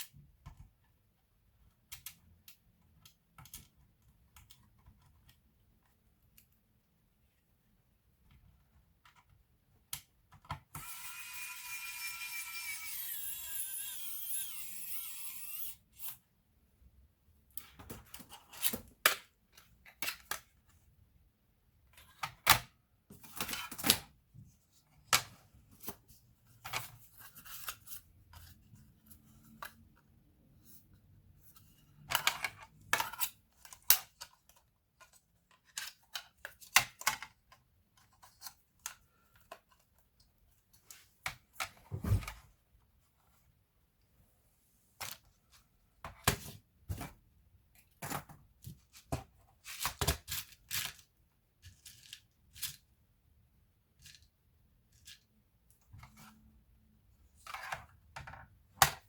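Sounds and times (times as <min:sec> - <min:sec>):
hands handling laptop parts and tools: 0:00.0 - 0:11.1, 0:17.3 - 0:21.1, 0:21.7 - 0:43.7, 0:44.9 - 0:53.0, 0:53.9 - 0:56.6.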